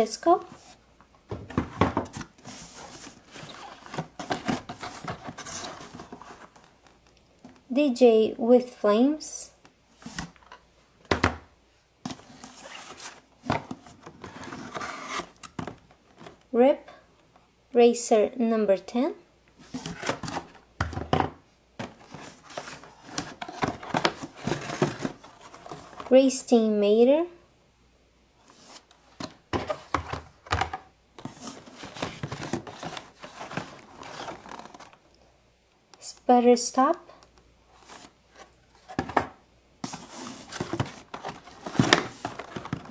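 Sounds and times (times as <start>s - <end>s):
packaging rustling: 1.5s - 7.0s, 12.1s - 16.4s, 21.8s - 26.1s, 31.2s - 35.0s, 37.8s - 42.9s.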